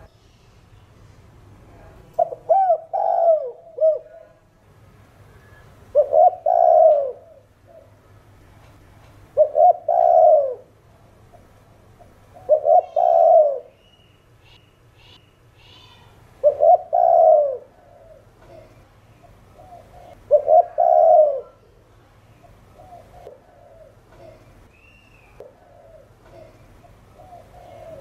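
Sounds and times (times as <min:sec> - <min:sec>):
dove cooing: 0:02.2 - 0:04.4, 0:05.4 - 0:08.0, 0:09.4 - 0:10.7, 0:12.0 - 0:13.8, 0:16.4 - 0:21.7, 0:22.4 - 0:24.5, 0:25.4 - 0:28.0.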